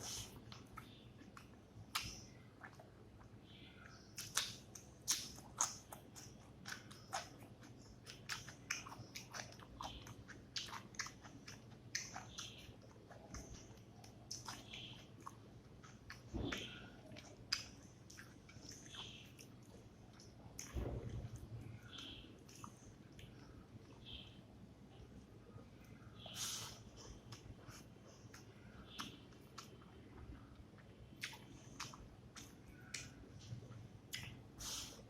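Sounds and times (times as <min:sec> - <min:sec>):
person chewing food: 0:00.0 - 0:24.3, 0:25.8 - 0:35.0
wet mouth smacks and clicks: 0:01.4 - 0:02.8.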